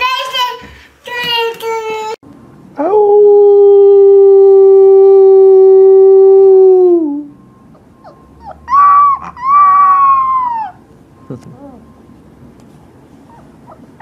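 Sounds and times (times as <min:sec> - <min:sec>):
long low howl: 0:02.8 - 0:12.1
puppy howling high-pitched: 0:08.0 - 0:10.8.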